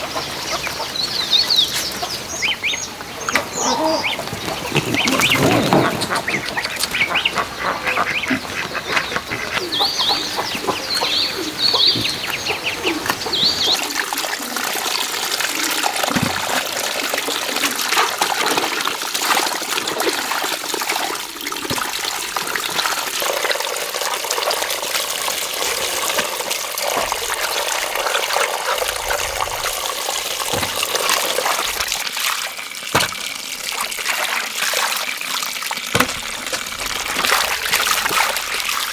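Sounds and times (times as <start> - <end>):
running water rush: 0.0 - 38.9
fowl squawking: 1.7 - 14.0.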